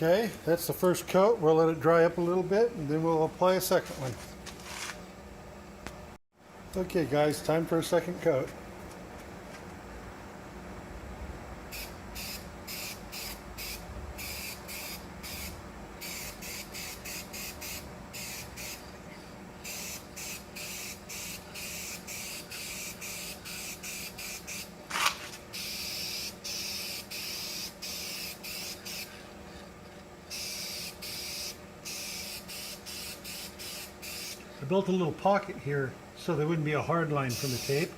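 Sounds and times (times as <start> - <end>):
aerosol spray can hissing: 11.8 - 18.8, 19.6 - 24.7, 25.6 - 29.1, 30.3 - 34.4, 37.3 - 37.9.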